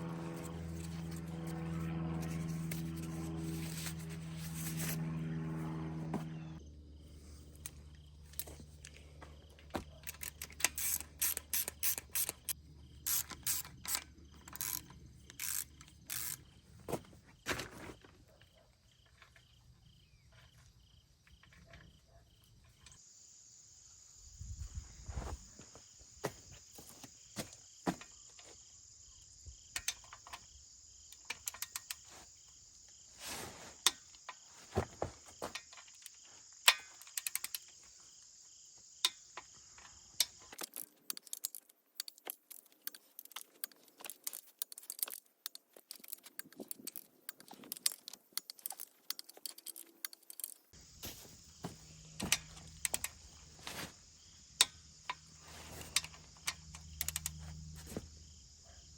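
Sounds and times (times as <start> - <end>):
high-pitched hum: 0.0 - 6.9
hand tools clicking on metal: 9.9 - 16.4, 40.2 - 50.7, 52.2 - 53.8, 54.6 - 57.4
ratchet strokes: 10.2 - 16.4.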